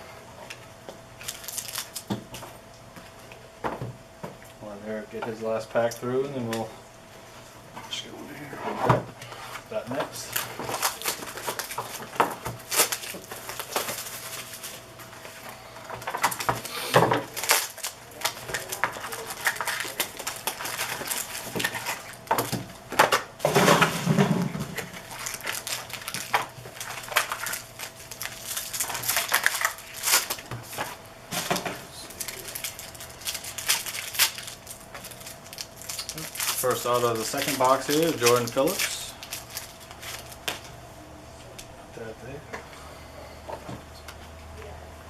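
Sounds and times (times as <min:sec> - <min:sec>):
wrappers rustling: 0:01.2 - 0:02.1, 0:09.4 - 0:22.9, 0:23.5 - 0:40.7.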